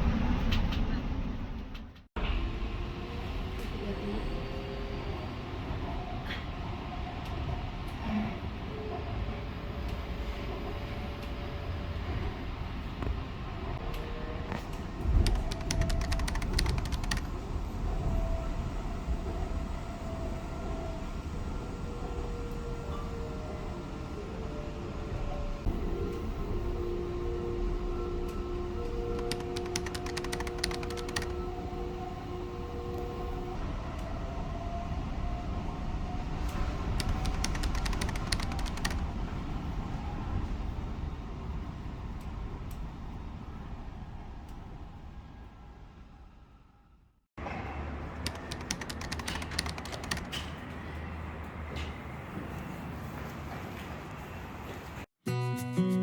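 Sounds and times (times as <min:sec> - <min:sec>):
sharp clicks: 0:29.2 - 0:31.3, 0:48.2 - 0:50.5.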